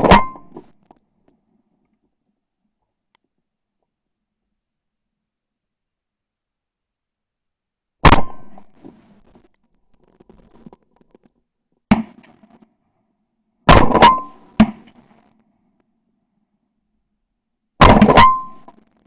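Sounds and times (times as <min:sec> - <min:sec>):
shotgun blasts with echo: 0:08.0 - 0:08.7, 0:13.7 - 0:14.9, 0:17.8 - 0:18.6.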